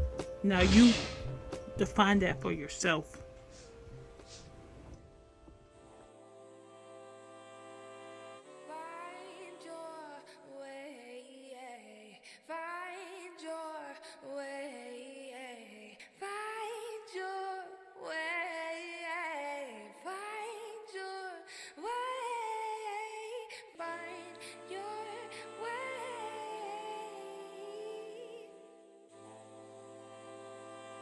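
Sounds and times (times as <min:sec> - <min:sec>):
woman singing long held notes: 0:08.5 - 0:31.0
low sustained chord: 0:28.0 - 0:31.0.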